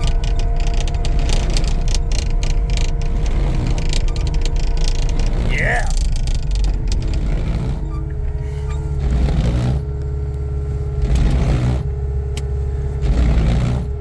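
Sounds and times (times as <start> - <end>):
skid steer engine running: 0.0 - 14.0.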